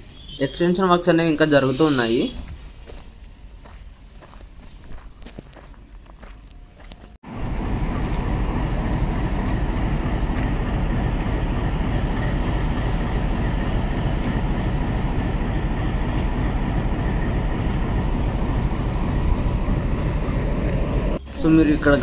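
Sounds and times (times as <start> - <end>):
train rumbling on tracks: 2.3 - 22.0.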